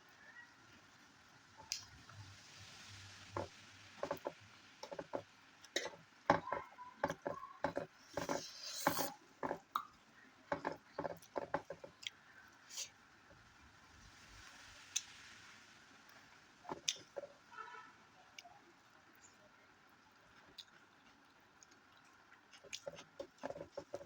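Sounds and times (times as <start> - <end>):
person chewing and mouth smacks: 9.6 - 10.0, 20.4 - 24.0.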